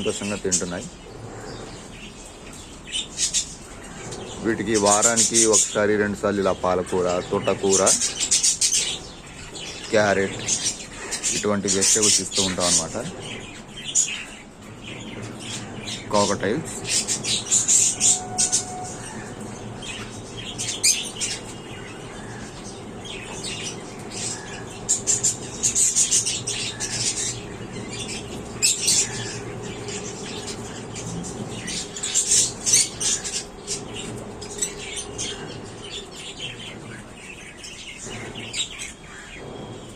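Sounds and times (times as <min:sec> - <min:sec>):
parrots squawking and chirping: 0:00.0 - 0:39.8.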